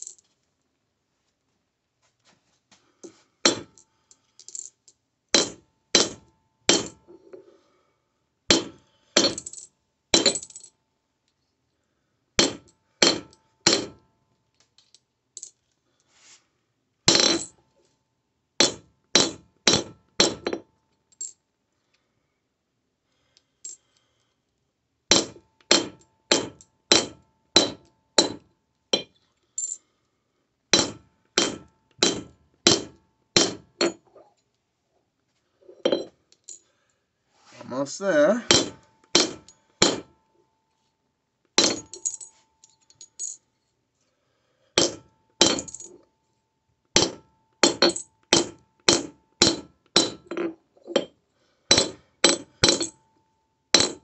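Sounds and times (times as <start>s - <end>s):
hammer striking metal on anvil: 25.1s - 28.4s, 30.8s - 34.0s, 38.5s - 40.1s.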